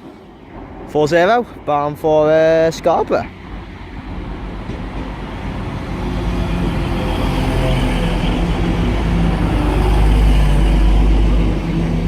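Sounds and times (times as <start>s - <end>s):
diesel train engine rumbling: 0.0s - 12.0s.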